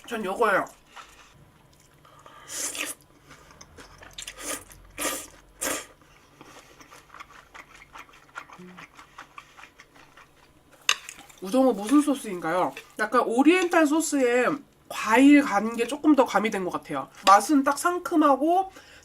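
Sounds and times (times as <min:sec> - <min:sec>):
noodle slurping: 0:02.5 - 0:03.0.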